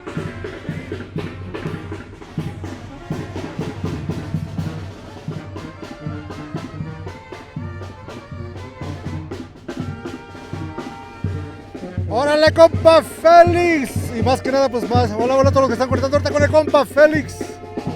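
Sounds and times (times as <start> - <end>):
brass instruments: 0.0 - 17.9
bass drum beat: 12.0 - 17.9.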